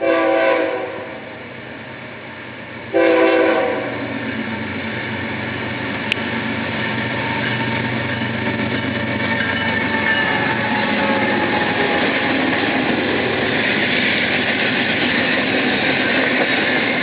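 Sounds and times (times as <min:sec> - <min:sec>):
locomotive horn blast: 0:00.0 - 0:01.2, 0:02.9 - 0:04.1
diesel engines and train rumble: 0:00.0 - 0:17.0.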